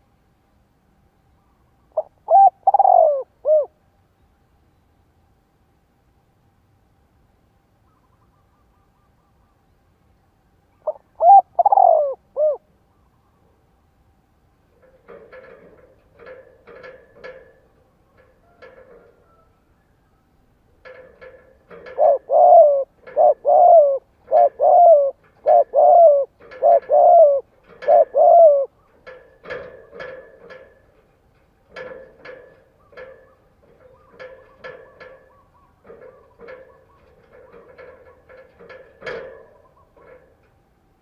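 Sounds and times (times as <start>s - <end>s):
dove cooing: 2.0s - 3.8s, 10.8s - 13.1s, 20.8s - 30.9s, 31.7s - 40.4s.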